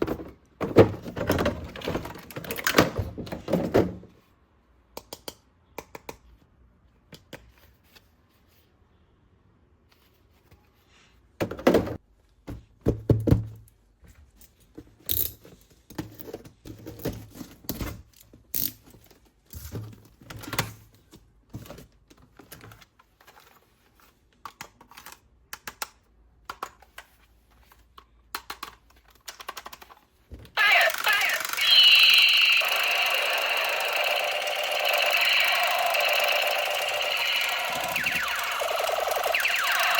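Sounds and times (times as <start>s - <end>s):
plastic toy pieces clicking: 28.4s - 38.5s.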